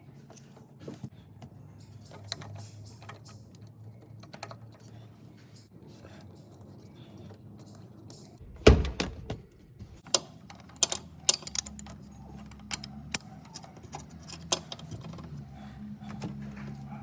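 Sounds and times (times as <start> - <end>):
loud knock: 8.5 - 9.5.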